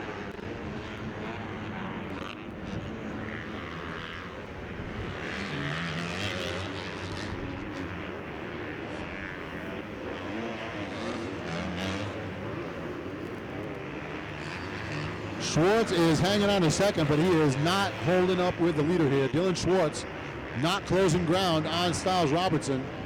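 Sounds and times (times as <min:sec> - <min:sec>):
motocross bike engines revving: 0:00.0 - 0:23.0.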